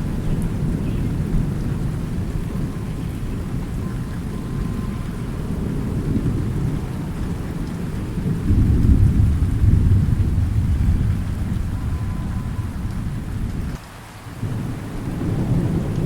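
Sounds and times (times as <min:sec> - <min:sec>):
steady rain: 0:00.0 - 0:16.0
thunder rumbling: 0:00.0 - 0:16.0.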